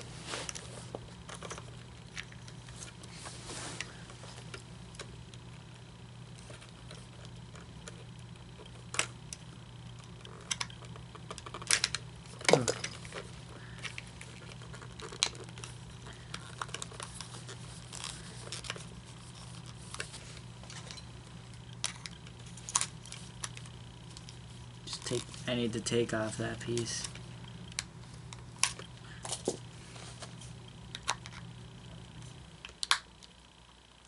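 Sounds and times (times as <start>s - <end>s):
steady low hum: 0.0s - 34.0s
small plastic parts clicking and rattling: 6.3s - 29.5s, 30.9s - 31.5s.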